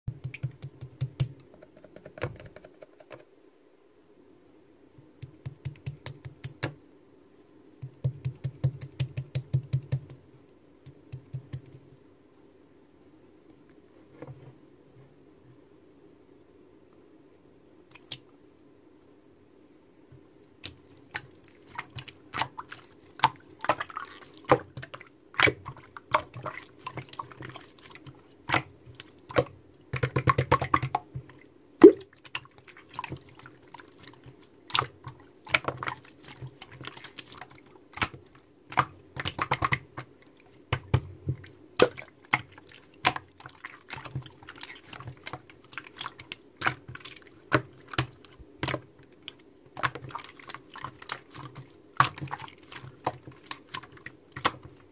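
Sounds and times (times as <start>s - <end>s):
hands squishing slime: 20.6s - 54.9s.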